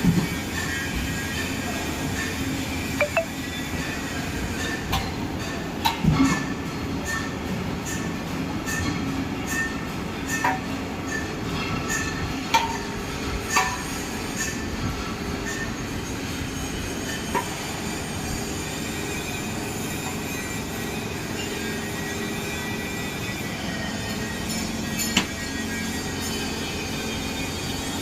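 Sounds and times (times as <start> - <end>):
thin high tones: 3.0 - 3.4.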